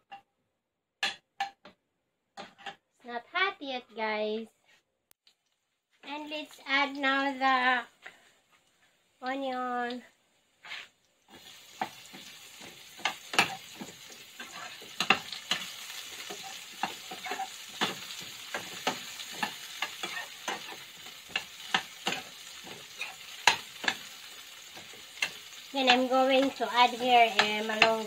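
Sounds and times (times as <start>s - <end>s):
metal spoon scraping a pan: 2.4s - 2.8s, 10.6s - 28.0s
onion and garlic sizzling in pan: 6.1s - 28.0s.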